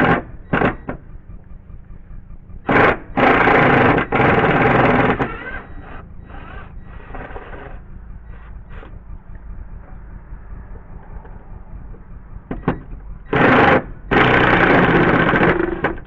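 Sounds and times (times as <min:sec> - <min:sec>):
cordless power tool bursts: 0:00.0 - 0:01.0, 0:02.6 - 0:07.8, 0:12.6 - 0:16.0.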